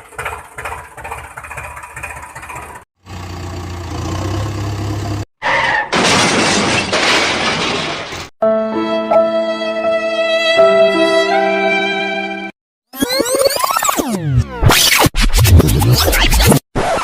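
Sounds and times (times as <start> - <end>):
rhythmic cartoon engine chug: 0.0 - 2.8.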